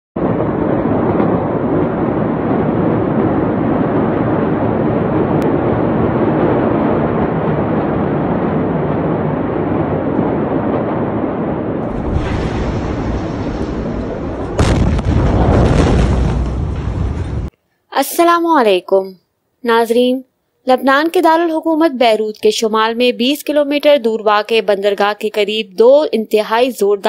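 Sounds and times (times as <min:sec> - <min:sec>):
loud steady rumbling noise: 0:00.2 - 0:17.5.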